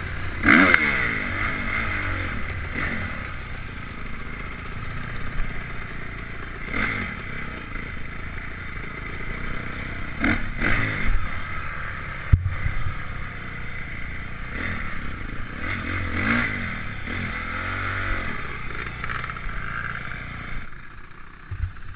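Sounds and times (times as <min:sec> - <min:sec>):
motocross engine revving: 0:00.0 - 0:21.9.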